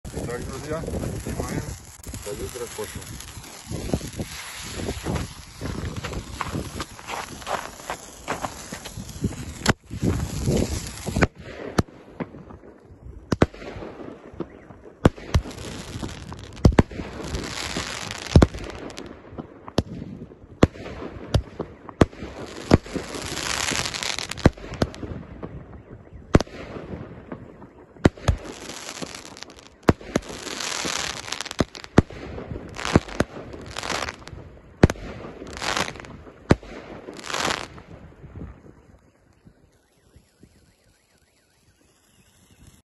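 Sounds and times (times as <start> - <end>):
fireworks crackling hiss: 0.0 - 11.9, 15.2 - 19.1, 22.2 - 25.1, 28.0 - 42.8
fireworks launch thumps and bursts: 0.2 - 12.5, 14.4 - 37.9.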